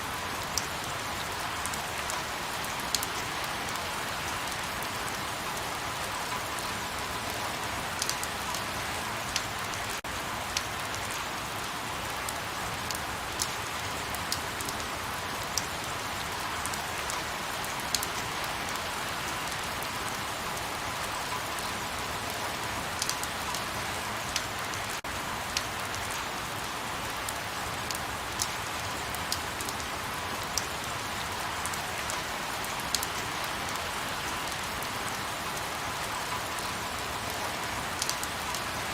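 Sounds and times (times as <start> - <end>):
light rain falling: 0.0 - 38.9
raindrops ticking on surface: 0.1 - 38.9.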